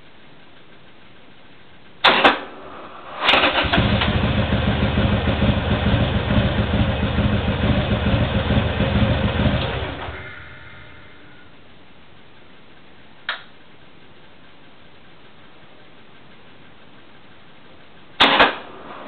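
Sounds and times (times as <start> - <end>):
electric starter cranking: 3.1 - 4.6
motorcycle engine chugging: 3.3 - 11.7.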